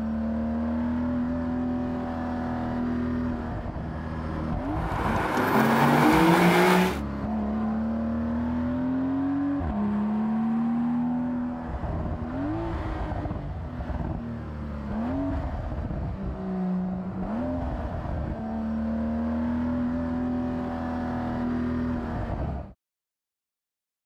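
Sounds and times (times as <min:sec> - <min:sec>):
car engine pulling under load: 0:04.2 - 0:07.0.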